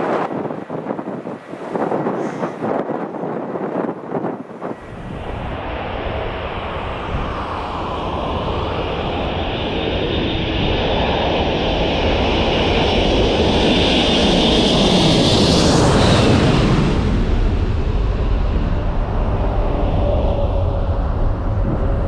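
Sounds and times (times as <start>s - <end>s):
jet engines rumbling and whining: 0.0s - 22.0s.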